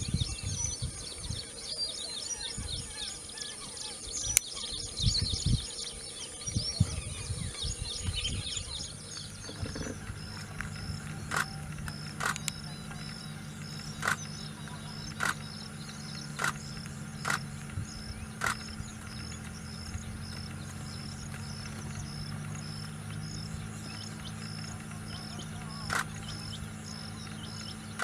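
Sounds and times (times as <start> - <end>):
bird calling: 0.0 - 28.0
steady low drone: 0.0 - 28.0
faint high chirp: 0.1 - 28.0.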